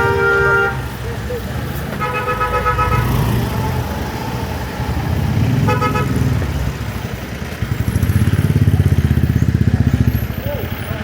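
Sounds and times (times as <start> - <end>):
horn toot: 0.0 - 1.0, 1.9 - 3.5, 5.5 - 6.4
motorcycle engine rumbling: 0.0 - 11.0.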